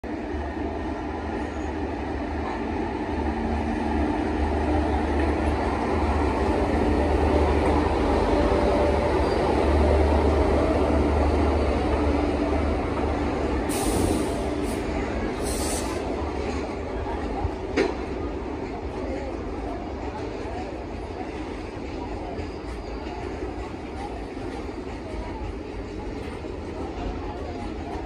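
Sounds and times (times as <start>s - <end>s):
wheels rumbling on rail: 0.0s - 28.0s
electric locomotive humming: 0.1s - 28.0s
high hiss: 15.4s - 16.1s.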